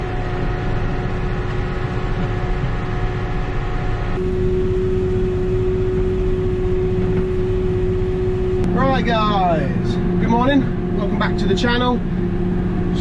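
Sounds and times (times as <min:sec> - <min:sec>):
steady whine: 0:00.0 - 0:13.0
tractor engine droning: 0:00.0 - 0:13.0.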